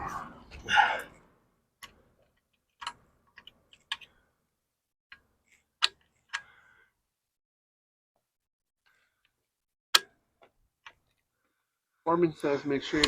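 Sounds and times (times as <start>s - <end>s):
metal parts and tools clicking: 5.1s - 6.5s.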